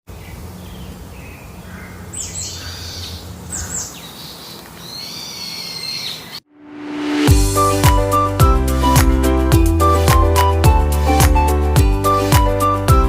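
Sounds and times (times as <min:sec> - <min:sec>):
high bird calls: 0:00.2 - 0:06.5.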